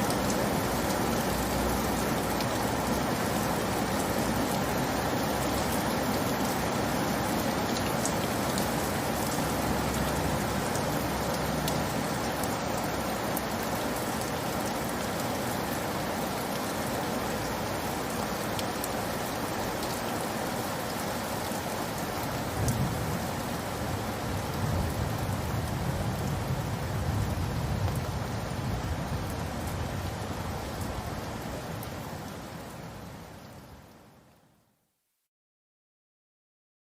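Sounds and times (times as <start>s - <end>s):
rain hissing: 0.0s - 34.3s
raindrop ticks: 7.7s - 13.6s.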